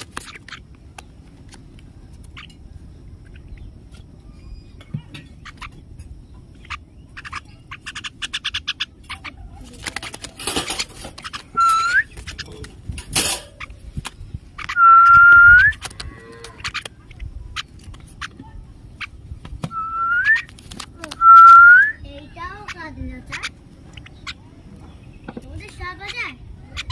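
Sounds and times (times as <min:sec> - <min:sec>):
rapid chattering bird calls: 0:00.0 - 0:26.9
person whistling: 0:14.8 - 0:15.7, 0:19.8 - 0:20.4, 0:21.2 - 0:22.0.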